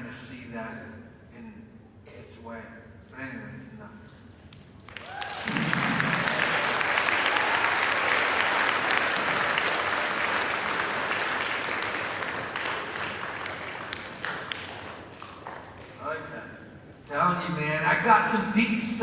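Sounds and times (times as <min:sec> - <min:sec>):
crowd applauding: 0:04.8 - 0:16.3.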